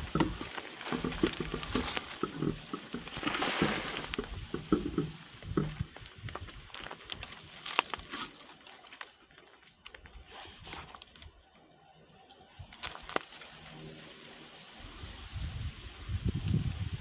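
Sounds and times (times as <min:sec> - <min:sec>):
dry leaves rustling and crackling: 0:00.0 - 0:11.4, 0:12.3 - 0:17.0
twigs snapping: 0:00.0 - 0:11.4, 0:12.6 - 0:13.8.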